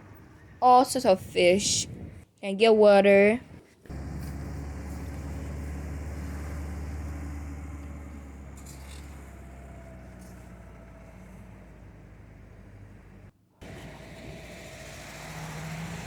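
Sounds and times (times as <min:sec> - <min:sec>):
vehicle engine rumbling: 0:03.4 - 0:16.0.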